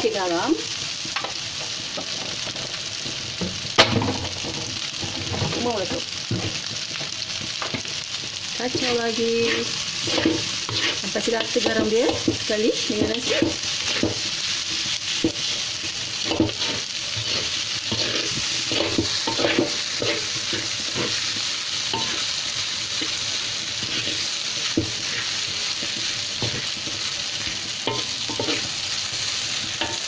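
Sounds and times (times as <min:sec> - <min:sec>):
rice sizzling in a wok: 0:00.0 - 0:30.0
spatula scraping pan: 0:08.6 - 0:30.0.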